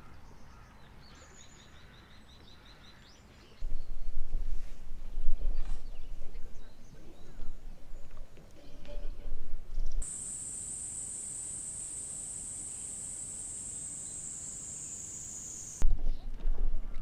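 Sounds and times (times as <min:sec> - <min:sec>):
insects shrilling: 0:10.0 - 0:15.8.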